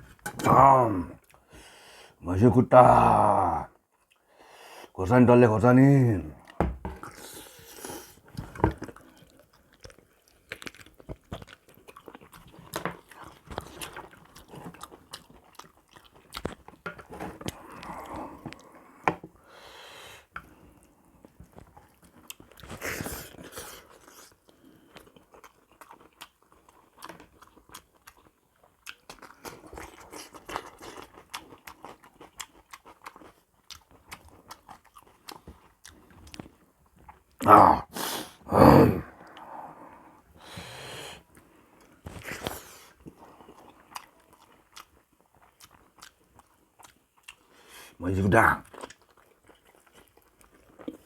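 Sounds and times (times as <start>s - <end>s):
person chewing crunchy food: 6.4s - 19.4s, 20.2s - 48.0s, 48.6s - 51.0s.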